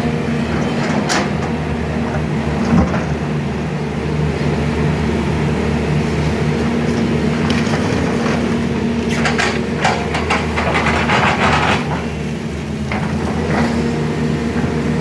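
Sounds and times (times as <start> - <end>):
excavator diesel engine running: 0.0 - 15.0
clattering knocks: 9.1 - 12.2.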